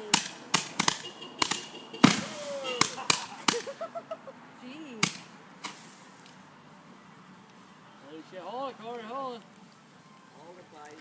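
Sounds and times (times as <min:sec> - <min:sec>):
firework cracks: 0:00.0 - 0:03.8, 0:05.0 - 0:06.3.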